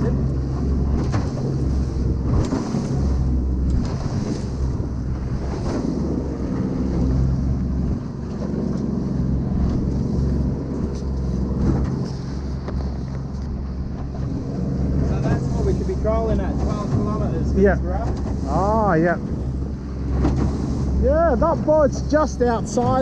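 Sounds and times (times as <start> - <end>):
boat motor running: 0.0 - 23.0
water splashing: 0.0 - 23.0.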